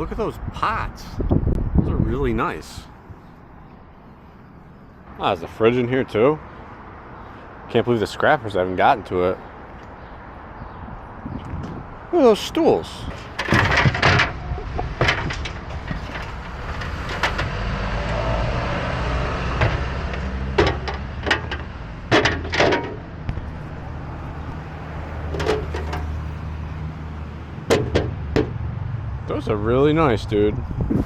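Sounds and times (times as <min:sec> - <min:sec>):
vehicle engine rumbling: 0:00.0 - 0:31.0
sharp knocks and clunks: 0:13.1 - 0:18.2, 0:19.4 - 0:23.5, 0:25.2 - 0:26.2, 0:27.6 - 0:28.6.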